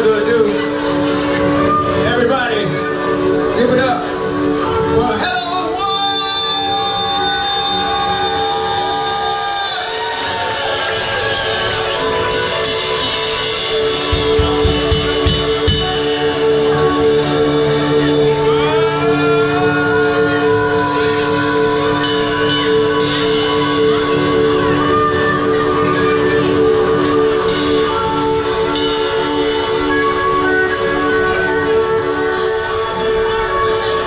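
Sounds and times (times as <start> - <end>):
rock band playing live: 0.0 - 34.0.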